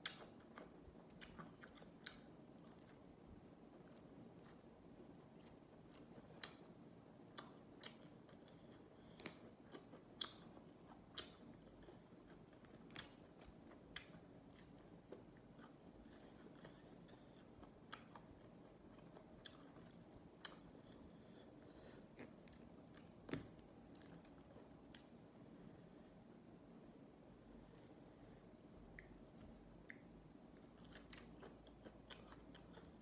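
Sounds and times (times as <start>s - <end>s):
chewing raw vegetables: 7.3s - 25.2s, 27.9s - 33.0s.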